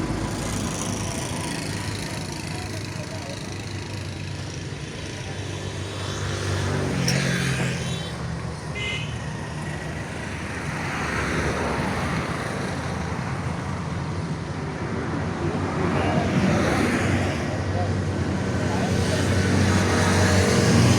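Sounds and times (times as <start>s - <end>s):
tractor diesel engine running: 0.0s - 6.0s.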